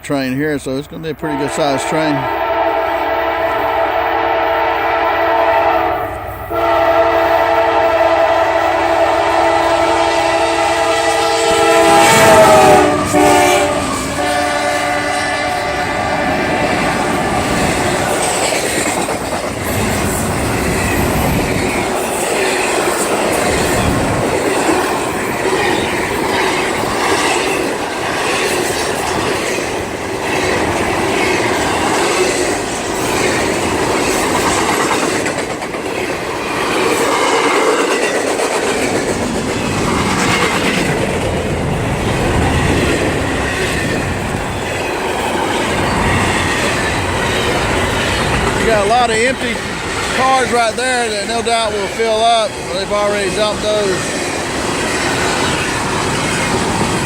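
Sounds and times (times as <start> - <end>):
freight train rolling past: 0.0 - 57.0
wheels clacking over rail joints: 16.0 - 57.0.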